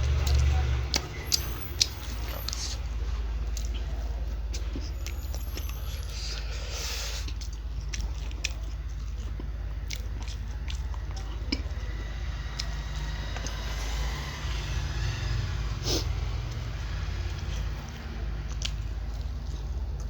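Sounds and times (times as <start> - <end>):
crunchy chewing: 0.0 - 20.0
low rumble: 7.4 - 20.0.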